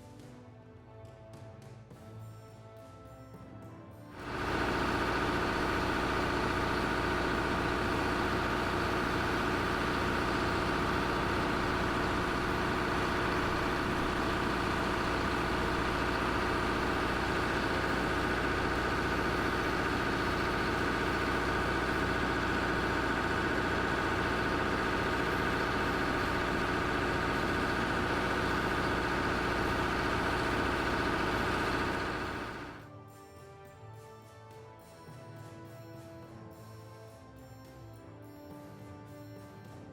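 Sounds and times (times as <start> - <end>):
heavy vehicle engine idling: 4.2 - 32.8.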